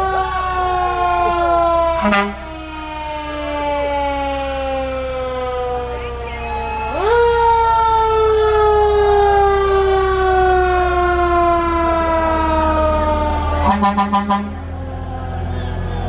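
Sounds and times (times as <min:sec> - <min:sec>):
fire engine siren: 0:00.0 - 0:16.0
short horn blasts: 0:02.0 - 0:02.5, 0:13.6 - 0:14.6.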